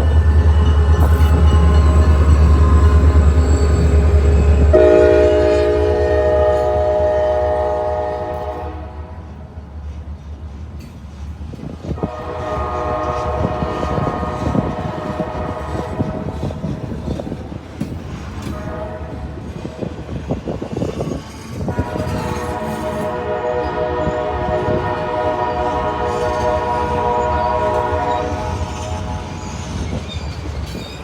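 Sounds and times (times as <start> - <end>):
train horn blast: 0.0 - 9.5, 12.0 - 16.8, 18.2 - 19.9, 21.6 - 30.0
train rumbling: 0.0 - 31.0
train wheels clattering: 9.8 - 23.3, 24.0 - 31.0.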